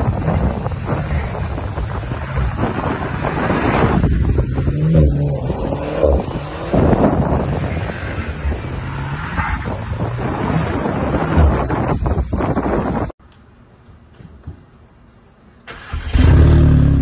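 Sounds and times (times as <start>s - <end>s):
wind buffeting microphone: 0.0s - 13.2s
car engine revving: 0.8s - 12.2s.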